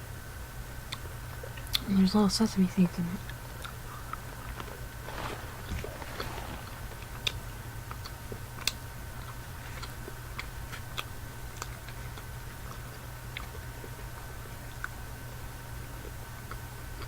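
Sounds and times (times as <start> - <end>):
steady low hum: 0.0 - 17.0
small mouth clicks: 3.2 - 4.6
chewing chocolate: 3.2 - 15.1.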